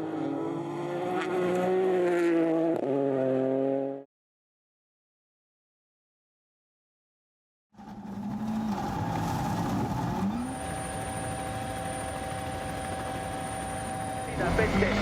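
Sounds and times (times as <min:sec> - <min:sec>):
rally car engine: 0:00.0 - 0:04.0, 0:07.8 - 0:15.0.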